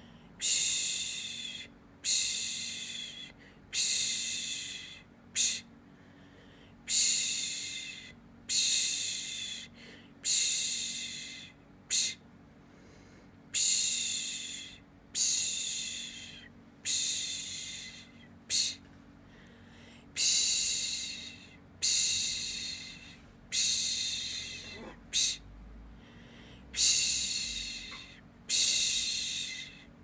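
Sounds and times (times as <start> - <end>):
faint low hum: 0.0 - 30.0
person shushing: 20.2 - 25.5.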